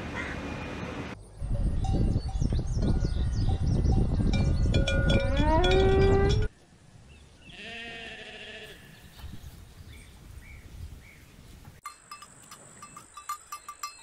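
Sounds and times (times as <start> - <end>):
cow mooing: 5.2 - 6.5
sheep bleating: 7.5 - 9.0
light clicks and clinks: 11.8 - 14.0.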